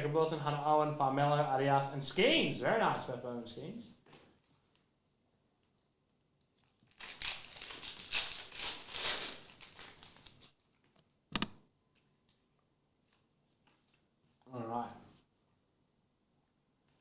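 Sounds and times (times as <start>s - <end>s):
sharp knock: 11.4s - 11.6s.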